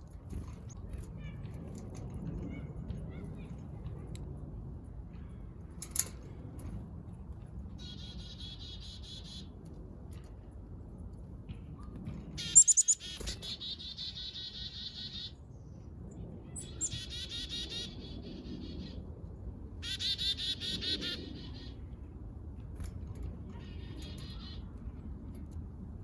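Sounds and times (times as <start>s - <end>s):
songbird trilling: 12.4s - 15.4s, 16.6s - 18.0s.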